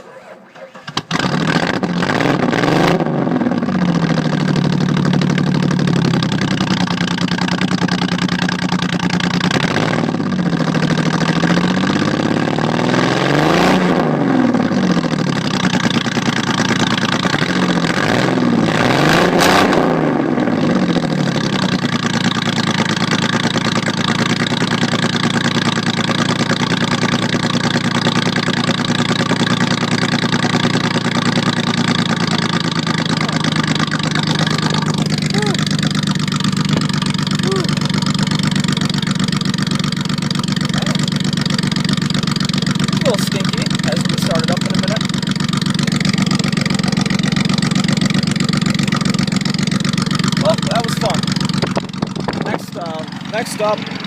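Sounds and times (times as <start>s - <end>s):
car engine revving and idling: 0.0s - 54.0s.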